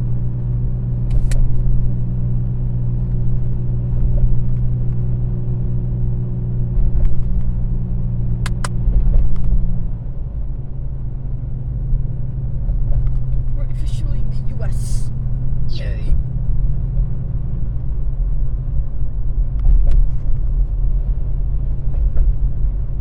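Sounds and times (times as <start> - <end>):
engine hum in cabin: 0.0 - 23.0
road rumble: 0.0 - 23.0
short sharp clicks: 8.5 - 8.7.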